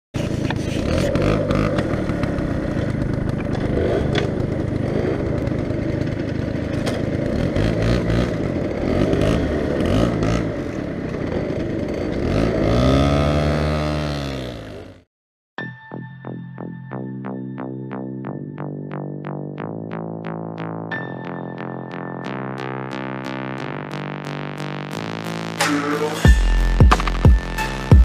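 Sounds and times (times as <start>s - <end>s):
moped engine revving: 0.2s - 15.1s
motorbike engines running: 0.2s - 15.1s
knocks and clatter: 0.3s - 8.2s.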